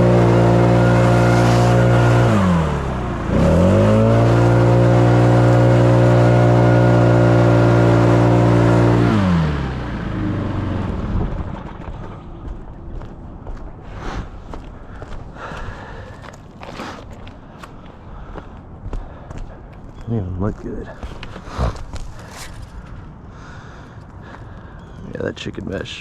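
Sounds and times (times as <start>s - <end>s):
leaf blower engine revving: 0.0s - 12.2s.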